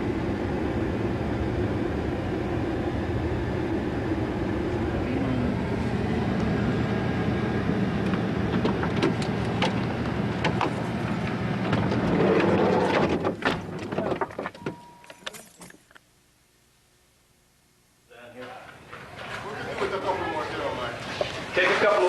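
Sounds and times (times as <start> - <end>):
road noise: 0.0 - 15.7, 18.4 - 22.0
van engine: 0.0 - 15.8
knocks and rattles: 8.5 - 15.9.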